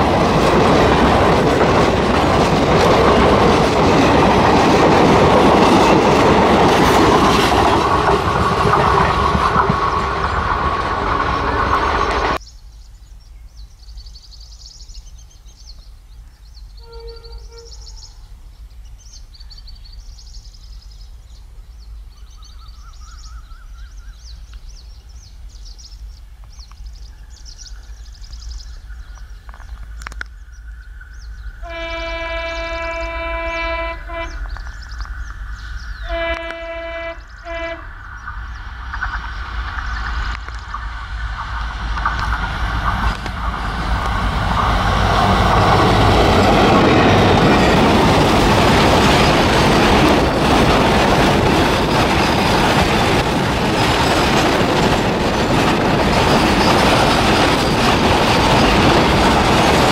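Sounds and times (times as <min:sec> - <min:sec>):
train wheels rumbling on rails: 0:00.0 - 0:12.4, 0:21.8 - 0:59.9
locomotive horn blasts: 0:16.8 - 0:18.0, 0:31.6 - 0:34.5, 0:36.0 - 0:37.9.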